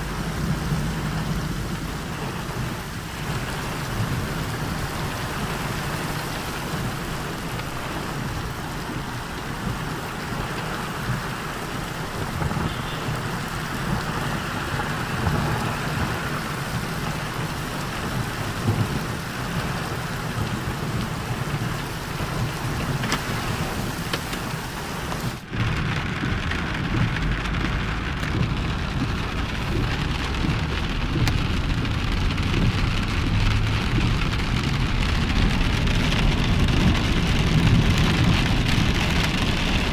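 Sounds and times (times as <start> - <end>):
rain downpour: 0.0 - 39.9
low rumble: 25.4 - 39.9.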